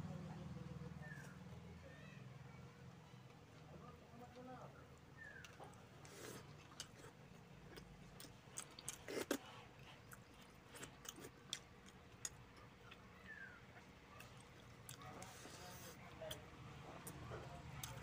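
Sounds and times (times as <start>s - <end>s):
soft chewing mouth clicks: 5.2s - 16.4s.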